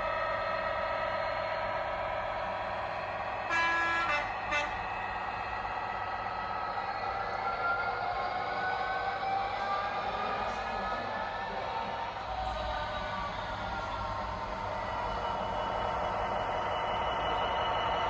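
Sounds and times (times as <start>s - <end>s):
locomotive horn: 3.5s - 5.0s.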